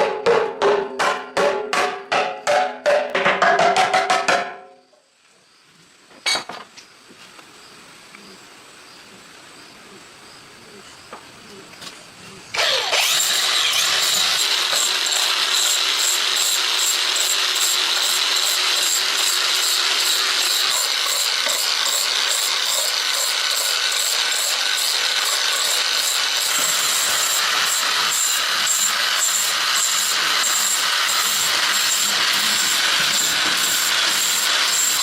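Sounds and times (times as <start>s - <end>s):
electric power tool whining: 12.5s - 35.0s.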